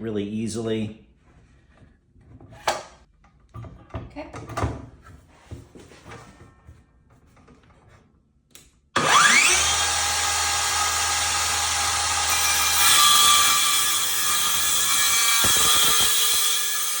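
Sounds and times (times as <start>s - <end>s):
circular saw whining: 9.0s - 17.0s.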